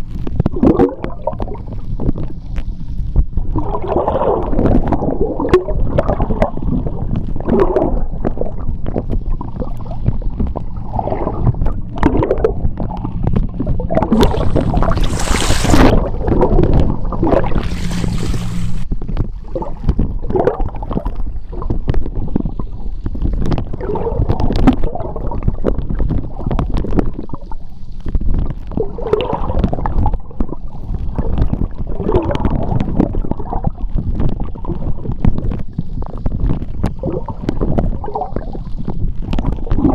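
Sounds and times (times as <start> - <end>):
underwater water sloshing: 9.4 - 18.9
bubbles rushing: 10.8 - 18.9.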